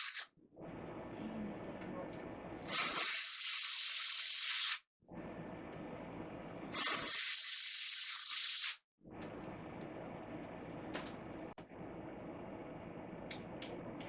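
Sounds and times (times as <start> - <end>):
pressurised spray hissing: 0.0 - 0.3, 2.7 - 4.8, 6.7 - 8.8.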